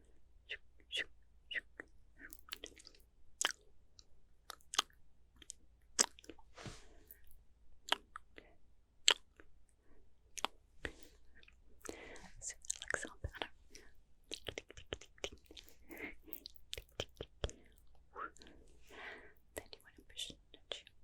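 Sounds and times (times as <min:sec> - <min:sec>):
wet mouth clicks and smacks: 0:01.5 - 0:03.6, 0:04.5 - 0:06.4, 0:11.8 - 0:17.6.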